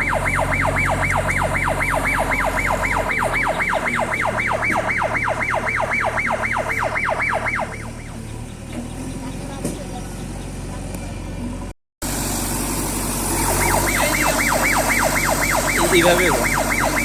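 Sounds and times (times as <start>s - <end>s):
electronic siren warning horn: 0.0s - 8.3s, 13.3s - 17.0s
diesel engine running: 0.0s - 17.0s.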